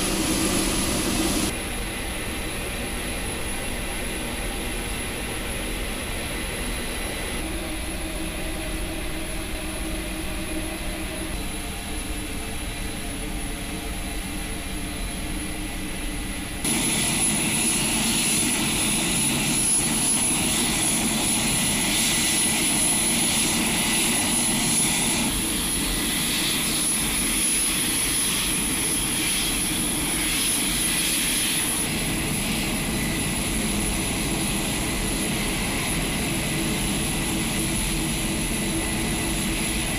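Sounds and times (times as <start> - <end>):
high whine and hiss: 0.0 - 6.0
turboprop engines running: 0.0 - 39.9.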